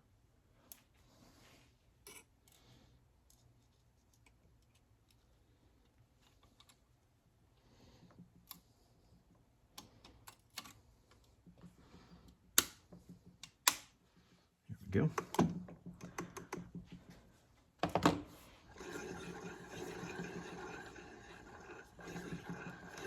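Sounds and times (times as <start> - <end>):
metallic clicks and taps of tools: 12.3 - 13.9.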